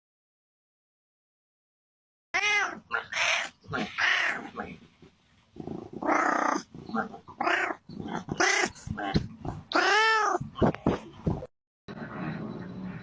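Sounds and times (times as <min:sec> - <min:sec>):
cat yowling: 0:02.4 - 0:04.5, 0:09.7 - 0:10.4.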